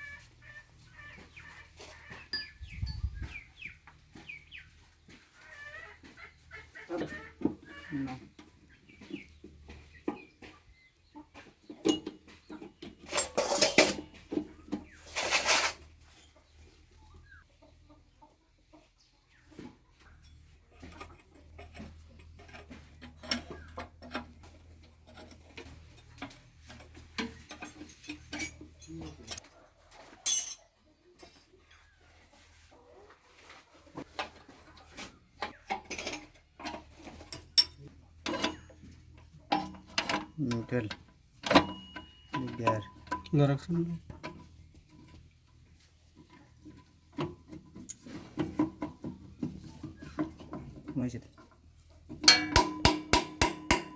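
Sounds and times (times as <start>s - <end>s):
metallic clinks of tools: 27.5s - 29.4s, 30.3s - 30.7s, 37.3s - 38.8s, 41.4s - 43.3s
metal rattling: 30.3s - 30.6s.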